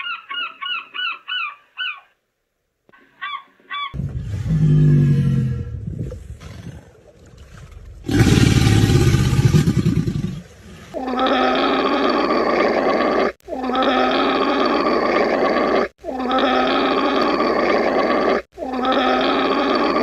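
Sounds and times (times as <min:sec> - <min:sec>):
low rough animal call: 0:03.9 - 0:10.2.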